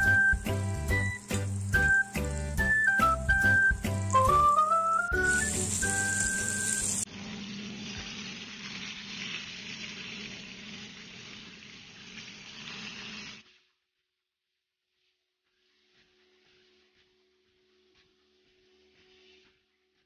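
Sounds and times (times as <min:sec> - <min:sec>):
background music: 0:00.0 - 0:07.0
fish sizzling in oil: 0:00.0 - 0:13.7.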